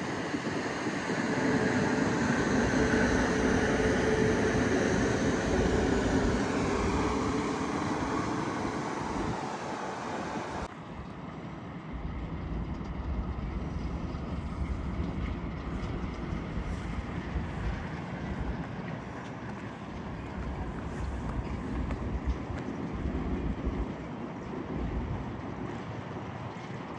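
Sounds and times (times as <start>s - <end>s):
train passing: 0.0s - 26.9s
low rumble: 1.0s - 9.6s.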